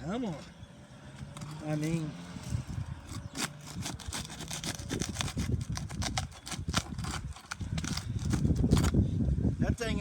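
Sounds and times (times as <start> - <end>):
roof shingle scraping and snapping: 1.3 - 9.0.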